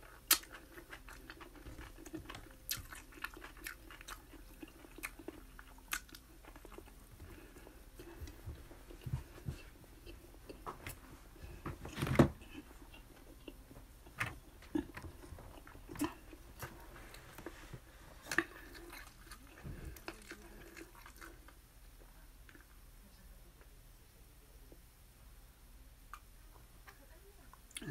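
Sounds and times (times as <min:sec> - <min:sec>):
person chewing food: 0:00.0 - 0:21.6.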